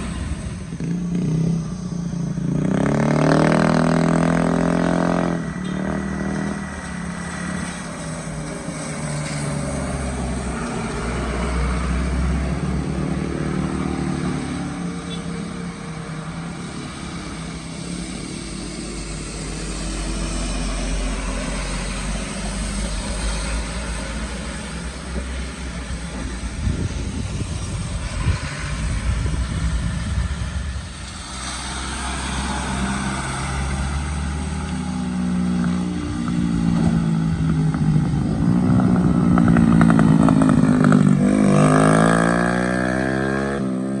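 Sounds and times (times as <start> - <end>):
vehicle engines on road: 0.0 - 44.0
engine revving up: 2.5 - 7.8, 16.6 - 44.0.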